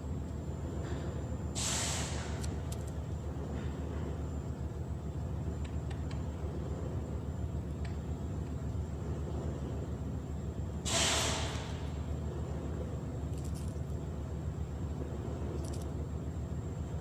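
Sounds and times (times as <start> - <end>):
engine rumbling: 0.0 - 17.0
short loud hiss: 1.6 - 2.4, 10.9 - 11.8.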